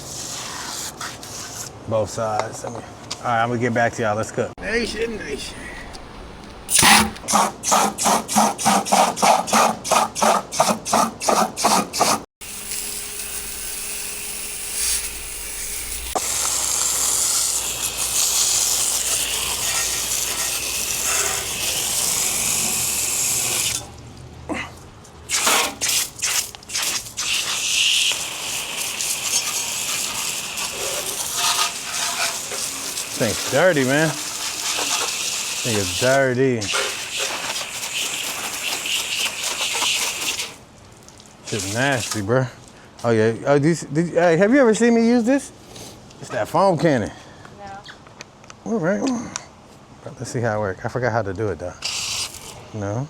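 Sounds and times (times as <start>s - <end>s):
steady spray hiss: 12.4s - 23.8s, 25.3s - 40.6s, 41.4s - 42.2s.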